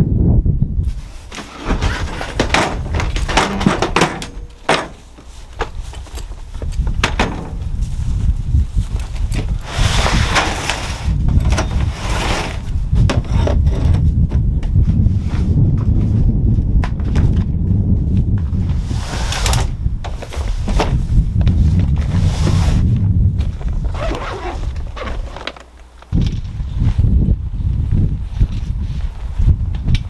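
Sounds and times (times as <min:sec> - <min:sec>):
wooden knocks and clatters: 0:01.0 - 0:14.8, 0:19.1 - 0:22.2.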